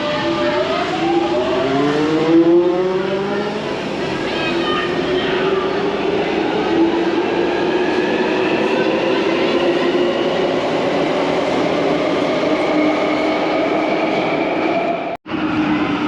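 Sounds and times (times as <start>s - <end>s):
metro train running rumble: 0.0s - 16.0s.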